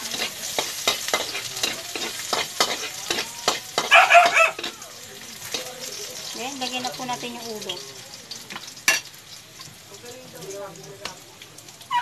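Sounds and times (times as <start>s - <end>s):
metal spatula scraping wok: 0.0s - 7.7s
garlic and onion sizzling in oil: 0.0s - 12.0s.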